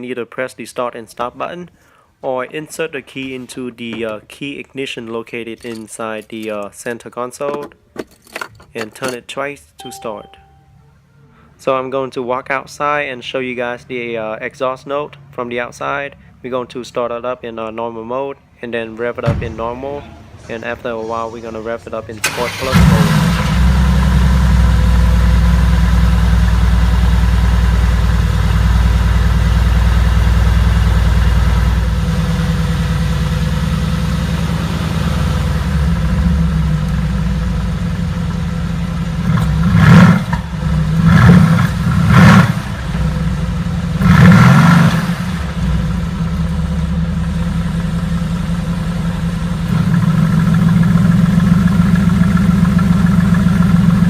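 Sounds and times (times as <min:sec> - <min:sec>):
engine revving: 0:22.2 - 0:27.3, 0:39.2 - 0:46.5
car engine idling: 0:22.2 - 0:39.7, 0:41.7 - 0:44.1, 0:45.0 - 0:54.0.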